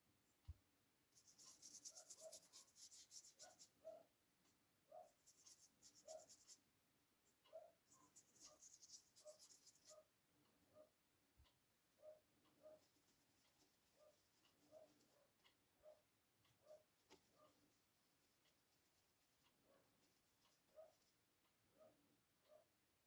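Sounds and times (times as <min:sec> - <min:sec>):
drawing scratches on paper: 0:01.2 - 0:03.7, 0:05.2 - 0:06.6, 0:07.9 - 0:10.0.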